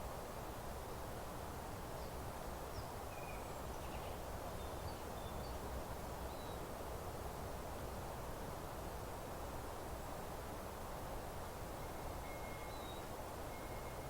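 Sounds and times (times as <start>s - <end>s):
outdoor background hiss: 0.0s - 14.0s
faint bird chirps: 2.0s - 5.6s, 11.8s - 14.0s.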